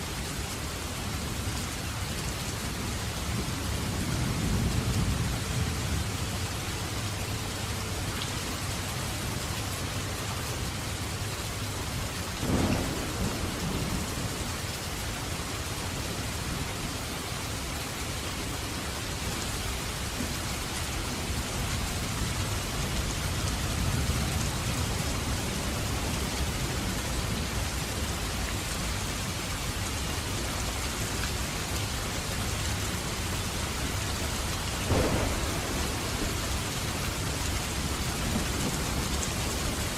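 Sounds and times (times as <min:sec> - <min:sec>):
heavy rain falling: 0:00.0 - 0:39.9
sharp thunder crack: 0:12.4 - 0:14.2, 0:34.9 - 0:38.8
rolling thunder: 0:12.4 - 0:14.7, 0:34.6 - 0:39.9.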